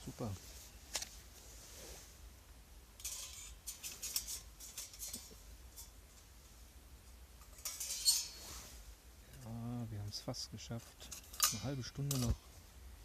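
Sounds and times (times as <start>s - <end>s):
metal cookware scraping: 3.0s - 5.9s, 7.4s - 8.7s.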